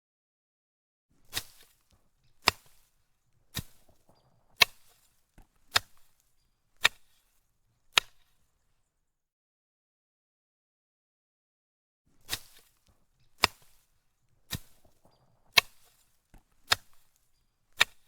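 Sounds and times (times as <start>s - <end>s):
sharp cracks: 1.3s - 7.3s, 12.2s - 18.0s.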